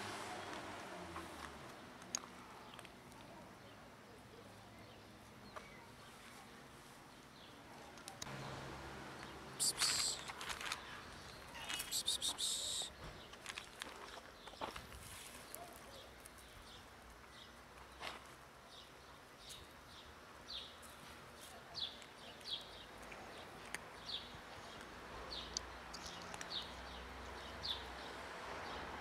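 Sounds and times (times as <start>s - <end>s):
small bird chirping: 9.6s - 13.0s.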